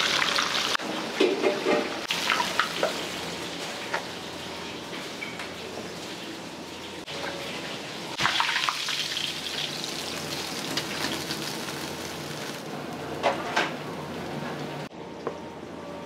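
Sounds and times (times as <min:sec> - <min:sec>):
meat sizzling in hot oil: 0:00.0 - 0:00.8, 0:08.2 - 0:12.7
oil crackles: 0:08.4 - 0:13.0.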